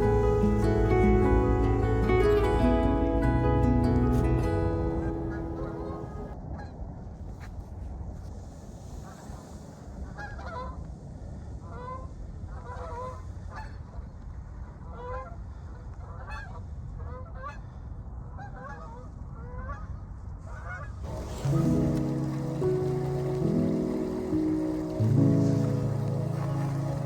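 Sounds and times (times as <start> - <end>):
geese honking: 0.0 - 6.4, 20.7 - 27.0
low rumble: 0.0 - 6.5.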